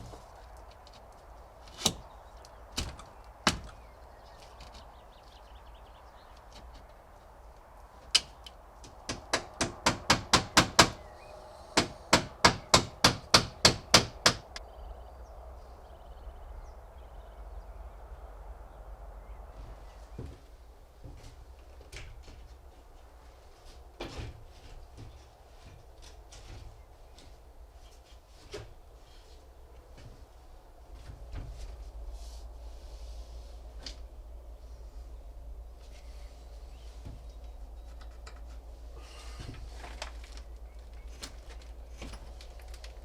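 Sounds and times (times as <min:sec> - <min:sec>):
hammering on wood: 0:02.8 - 0:03.8, 0:08.8 - 0:11.1, 0:11.8 - 0:14.6.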